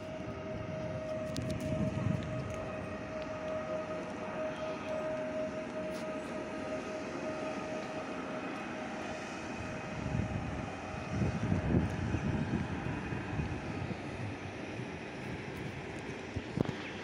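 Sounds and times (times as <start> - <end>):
wind on microphone: 0.0 - 4.0, 9.5 - 17.0
electric train rumbling: 0.0 - 17.0.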